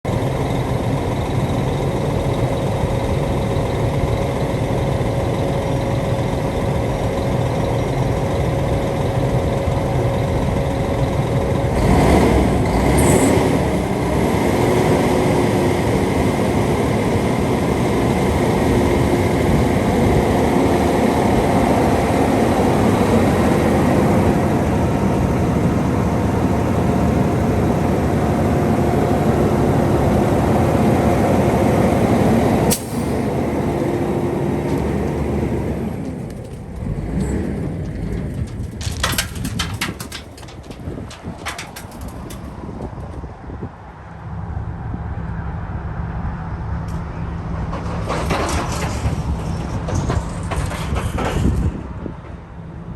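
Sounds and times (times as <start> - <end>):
diesel truck engine running: 0.0 - 52.9.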